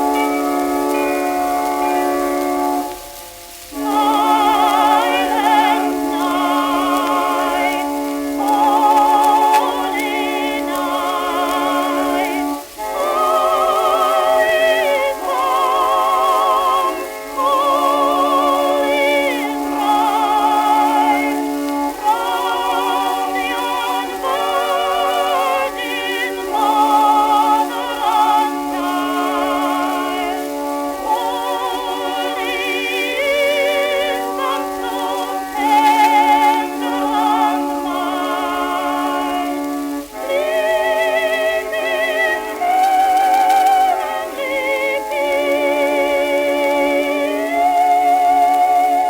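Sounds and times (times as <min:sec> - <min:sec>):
old phonograph record music: 0:00.0 - 0:49.0.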